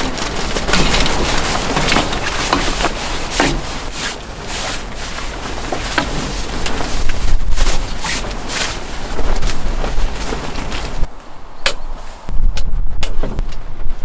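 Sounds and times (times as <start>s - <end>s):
tent fabric flapping: 0.0s - 11.2s
strong wind gusting: 0.0s - 14.0s.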